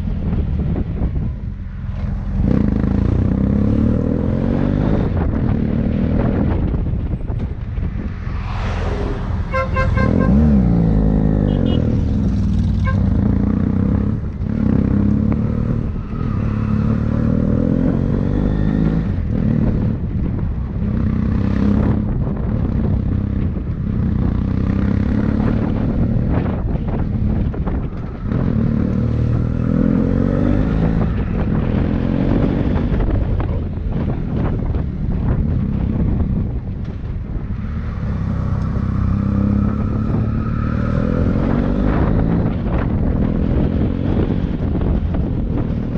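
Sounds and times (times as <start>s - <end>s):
motorcycle engine revving: 2.0s - 6.7s, 8.2s - 20.1s, 37.5s - 45.9s.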